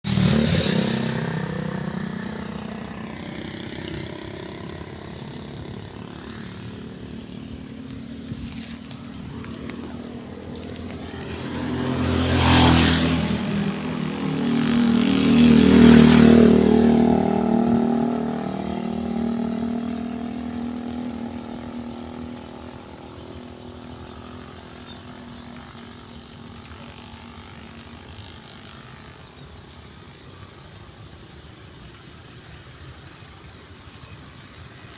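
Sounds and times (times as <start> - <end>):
vehicle engines passing by: 0.0 - 34.9.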